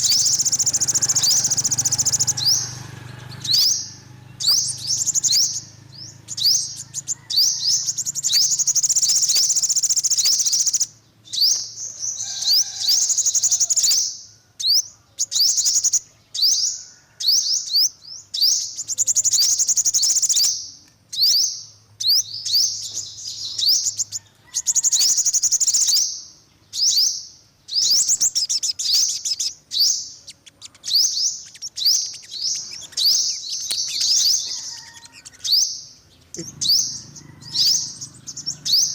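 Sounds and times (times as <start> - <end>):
sunbird singing: 0.0 - 38.9.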